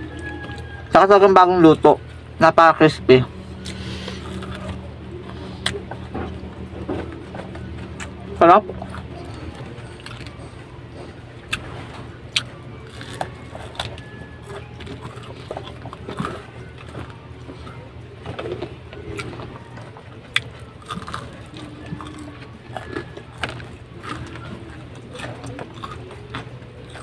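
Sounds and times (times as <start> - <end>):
chewing crispy chicken: 0.0 - 2.1, 3.3 - 27.0
steady low hum: 0.0 - 27.0.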